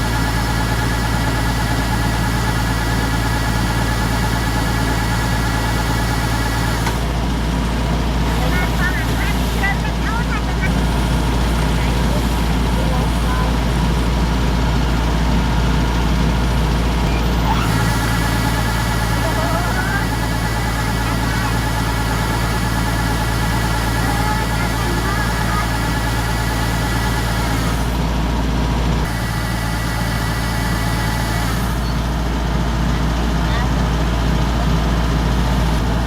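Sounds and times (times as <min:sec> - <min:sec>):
combine harvester engine drone: 0:00.0 - 0:36.0.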